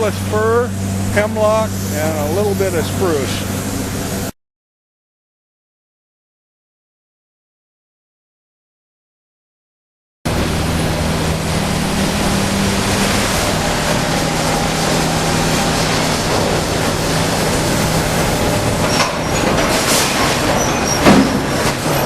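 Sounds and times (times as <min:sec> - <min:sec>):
sawmill machinery running: 0:00.0 - 0:04.3, 0:10.3 - 0:22.0
high metal squeals: 0:15.0 - 0:22.0
clattering: 0:18.4 - 0:22.0.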